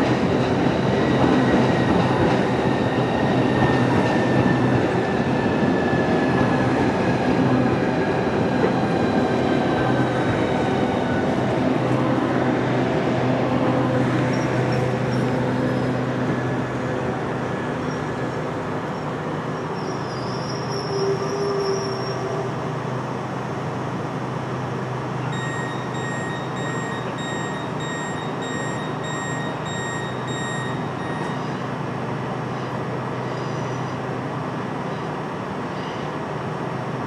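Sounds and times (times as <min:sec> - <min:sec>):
electric train hum and rumble: 0:00.0 - 0:37.0
high squeal: 0:19.7 - 0:22.4
electronic beeps: 0:25.3 - 0:31.6.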